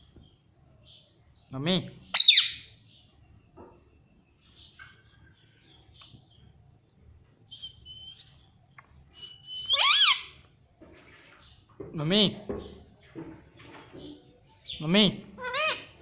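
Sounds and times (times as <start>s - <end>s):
parrot talking calls: 2.1s - 2.7s, 9.5s - 10.4s, 15.3s - 16.0s
parrot chirps and whistles: 2.2s - 2.7s, 9.2s - 10.4s
parrot loud call: 2.2s - 2.7s, 9.5s - 10.4s, 15.4s - 16.0s.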